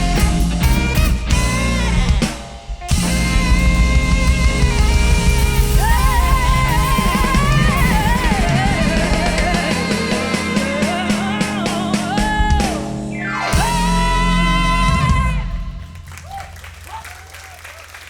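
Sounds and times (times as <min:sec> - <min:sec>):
fast drum strokes: 0:00.0 - 0:14.0
live rock band playing: 0:00.0 - 0:15.9.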